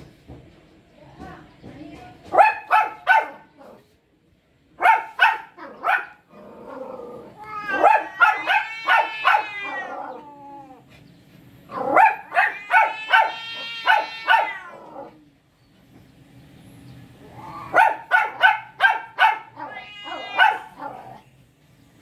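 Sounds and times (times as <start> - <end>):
cats yowling: 6.6 - 10.9, 11.7 - 15.4, 17.2 - 21.2.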